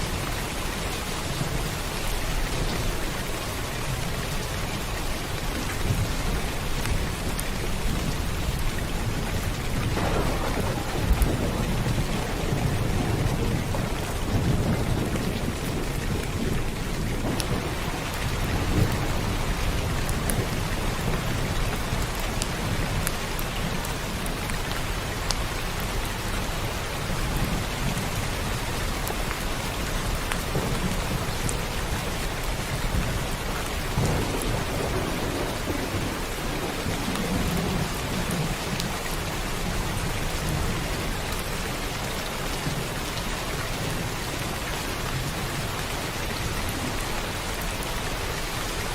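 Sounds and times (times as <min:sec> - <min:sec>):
steady rain: 0:00.0 - 0:48.9
thunder rumbles: 0:05.4 - 0:24.3, 0:26.6 - 0:41.8.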